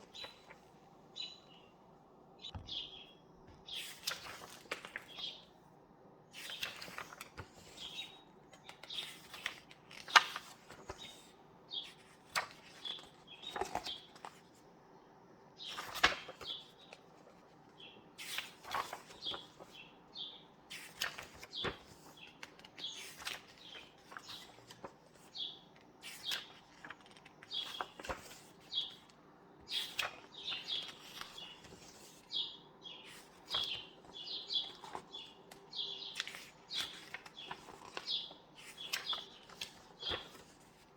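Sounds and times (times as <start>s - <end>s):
book pages turning: 0.0s - 1.4s, 3.4s - 5.4s, 6.4s - 14.6s, 15.6s - 19.9s, 20.6s - 40.9s
small birds chirping: 1.1s - 1.8s, 2.4s - 4.3s, 17.8s - 40.8s.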